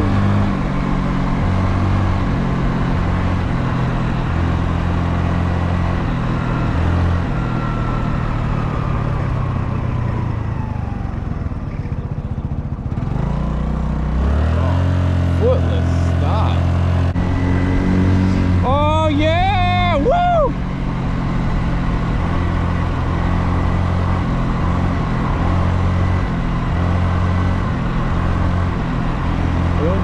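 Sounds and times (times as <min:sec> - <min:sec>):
small motorbike engine running: 0:02.4 - 0:16.6, 0:21.1 - 0:30.0.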